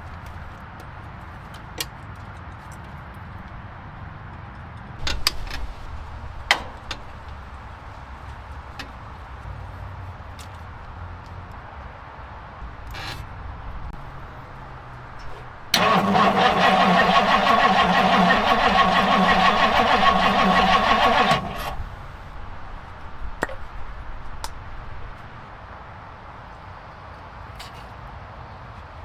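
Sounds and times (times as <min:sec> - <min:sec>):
starter motor cranking engine: 0:15.7 - 0:21.8.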